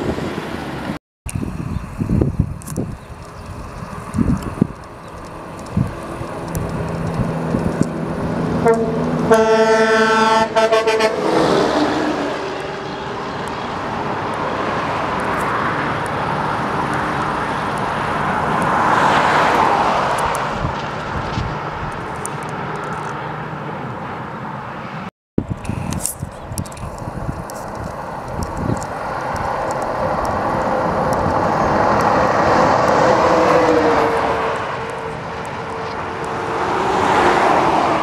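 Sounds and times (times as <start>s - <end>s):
truck passing by: 0.0s - 38.0s
truck horn: 8.5s - 13.2s.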